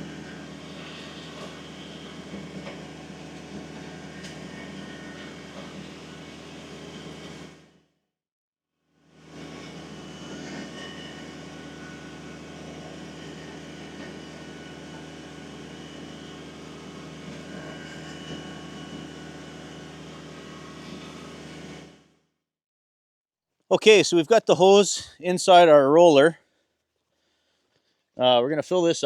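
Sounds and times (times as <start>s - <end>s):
tractor diesel engine running: 0.0s - 7.7s, 11.4s - 21.6s.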